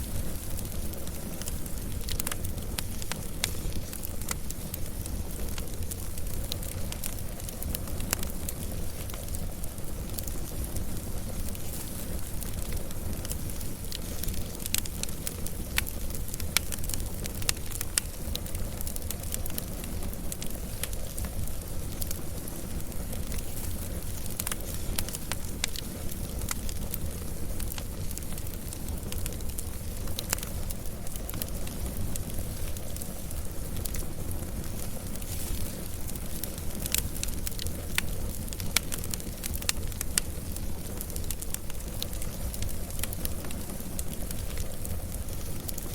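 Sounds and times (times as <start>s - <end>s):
fire crackles and pops: 0.0s - 45.9s
wood fire burning: 0.0s - 45.9s.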